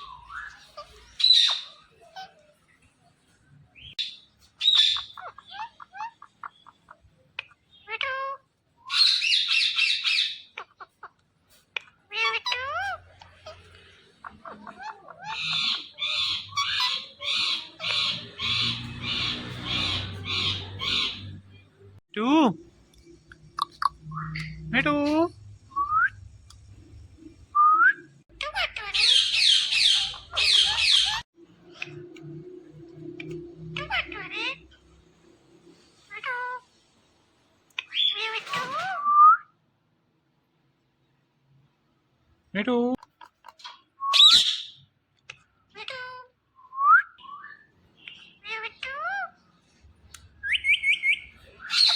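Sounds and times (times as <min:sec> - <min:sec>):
parrot squawking: 0:00.0 - 0:02.6, 0:03.8 - 0:21.7, 0:23.4 - 0:25.2, 0:28.3 - 0:32.2, 0:33.2 - 0:35.1, 0:36.0 - 0:36.8, 0:37.7 - 0:39.1, 0:43.4 - 0:46.4, 0:47.2 - 0:49.5, 0:50.4 - 0:51.9.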